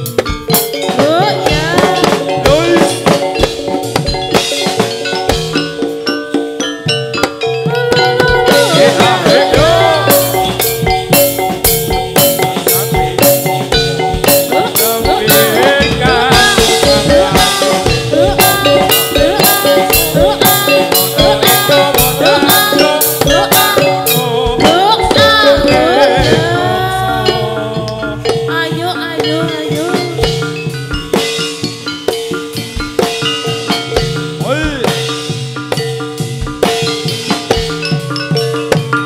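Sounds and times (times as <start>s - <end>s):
drums driving beat: 0.0s - 39.0s
struck metal percussion: 0.0s - 39.0s.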